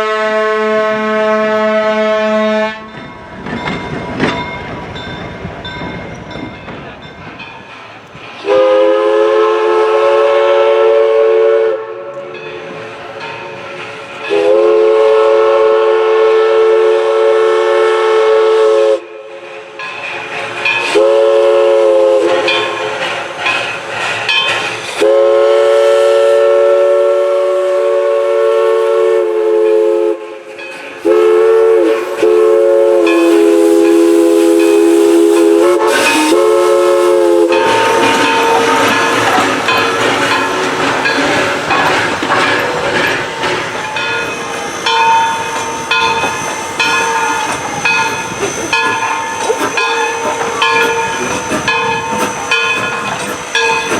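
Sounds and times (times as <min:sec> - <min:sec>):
steam whistle chord blasts: 0:00.0 - 0:02.9, 0:08.4 - 0:12.4, 0:14.3 - 0:19.4, 0:20.9 - 0:22.8, 0:25.0 - 0:40.9
train running noise: 0:00.0 - 0:53.9
steam hissing: 0:03.9 - 0:53.9.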